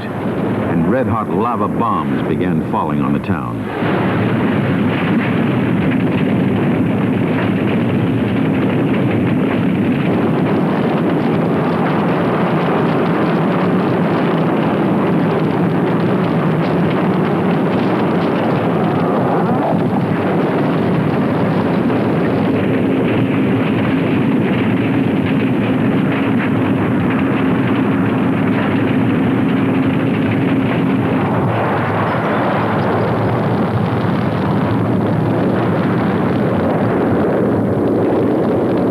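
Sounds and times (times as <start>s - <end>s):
faint steady hum: 0.0s - 4.8s
volcano erupting roar: 0.0s - 38.9s.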